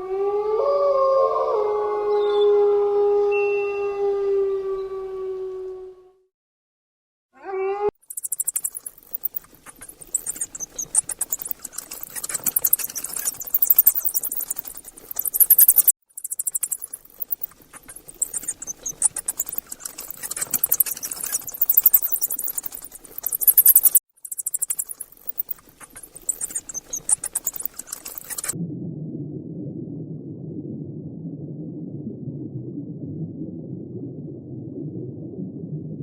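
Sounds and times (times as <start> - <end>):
insect pulsing buzz: 8.0 - 28.6.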